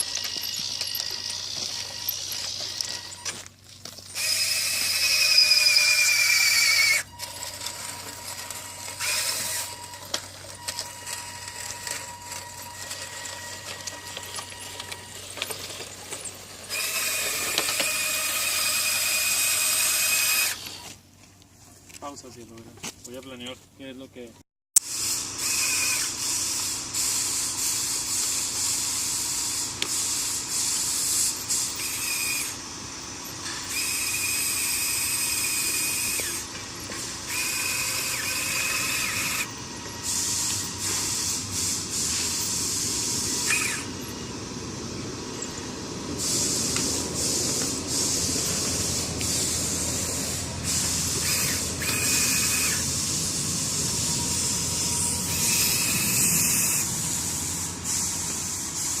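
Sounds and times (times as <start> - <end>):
machine grinding hiss: 0.0 - 3.4, 24.8 - 59.0
electric motors whining: 0.0 - 21.1, 24.8 - 59.0.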